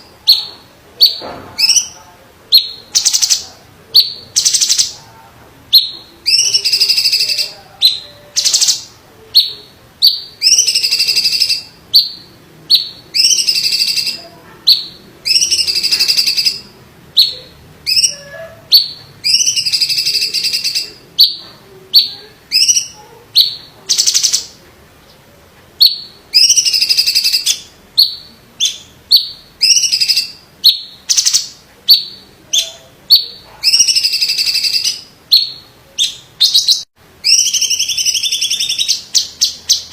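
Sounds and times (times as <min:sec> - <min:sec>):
bird harsh buzzy calls: 0:05.8 - 0:21.4, 0:25.8 - 0:39.9.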